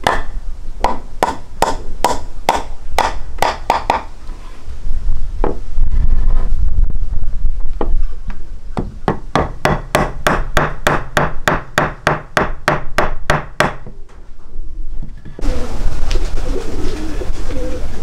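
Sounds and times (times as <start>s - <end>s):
low rumble: 4.7s - 9.1s.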